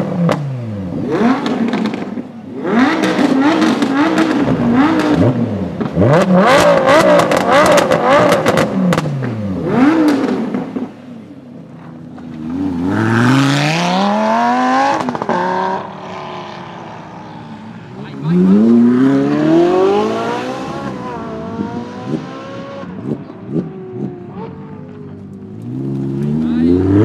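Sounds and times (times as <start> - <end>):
sports car engine revving: 0.0 - 27.0
exhaust pops: 3.0 - 9.4.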